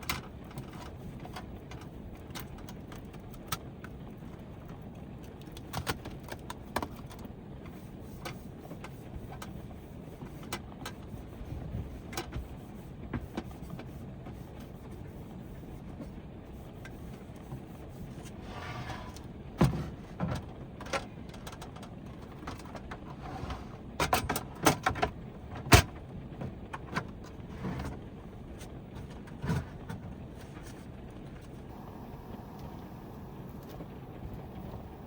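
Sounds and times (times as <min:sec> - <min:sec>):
steady low rumble: 0:21.7 - 0:35.0.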